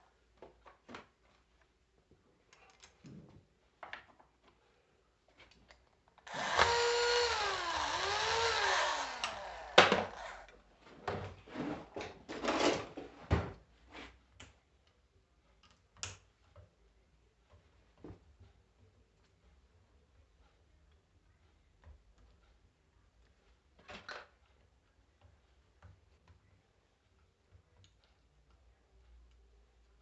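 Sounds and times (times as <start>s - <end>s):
power drill running: 6.2s - 10.5s.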